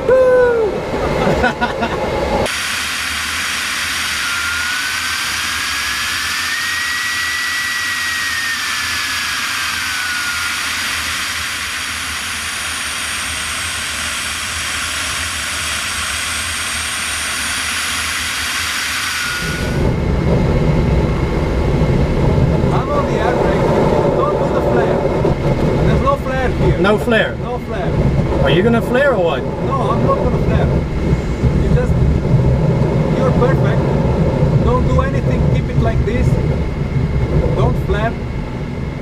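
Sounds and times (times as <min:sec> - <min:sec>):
airflow hissing: 0:02.1 - 0:26.7
whistle-like tone: 0:04.0 - 0:10.9.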